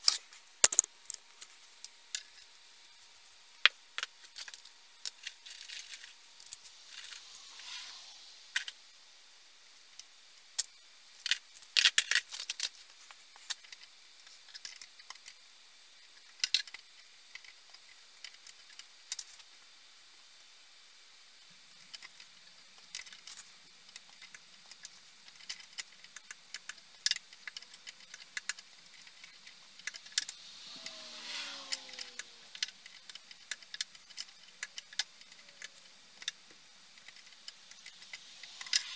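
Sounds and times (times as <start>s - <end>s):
faint steady hum: 0.0s - 38.9s
squeaking scrape: 7.0s - 8.2s, 30.4s - 32.5s.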